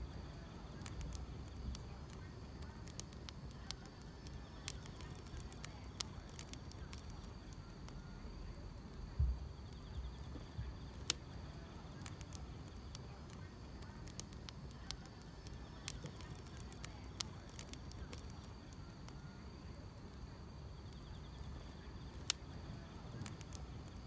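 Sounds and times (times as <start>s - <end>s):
grass insects chirring: 0.0s - 7.7s, 9.6s - 19.0s
wood fire crackling: 0.0s - 24.0s
dull low thump: 9.2s - 10.7s.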